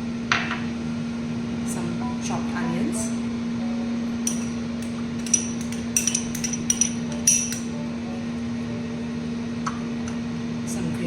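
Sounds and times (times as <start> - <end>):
steady low hum: 0.0 - 11.0
utensil clinking against bowl: 4.2 - 7.7.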